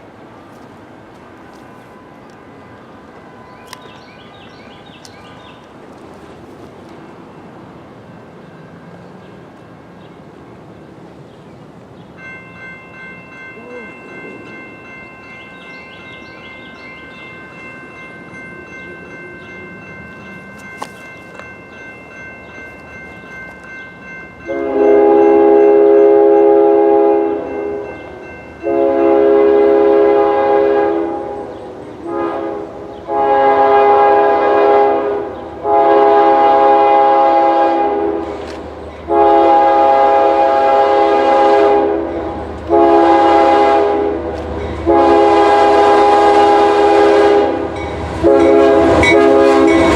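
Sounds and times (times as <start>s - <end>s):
low train rumble: 0.0s - 49.9s
crossing warning ringing tone: 12.1s - 49.9s
locomotive horn blasts: 24.4s - 27.9s, 28.6s - 38.4s, 39.1s - 49.9s.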